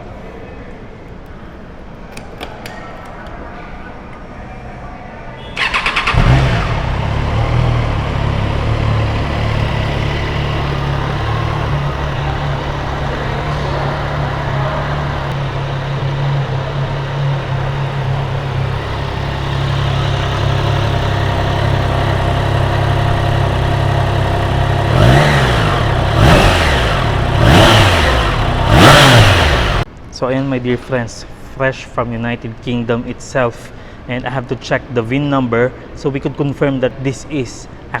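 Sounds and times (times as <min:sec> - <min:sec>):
engine revving: 0:05.6 - 0:29.9
motorcycle engine idling: 0:05.6 - 0:29.9.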